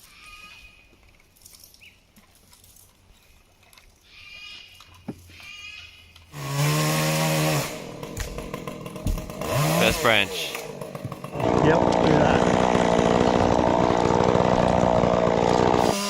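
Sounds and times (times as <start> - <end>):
chainsaw revving: 6.3 - 16.0.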